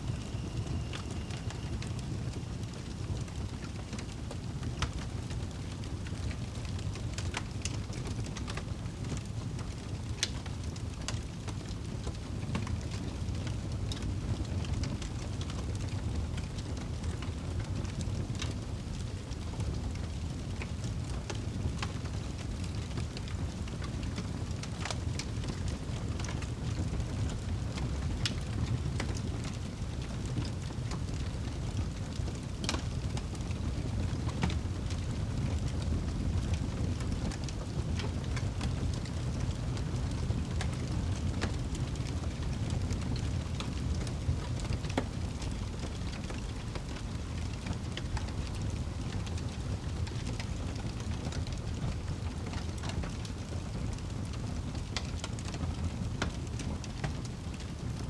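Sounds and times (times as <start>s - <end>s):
low rumble: 0.0s - 3.7s
wood fire crackling: 0.0s - 58.0s.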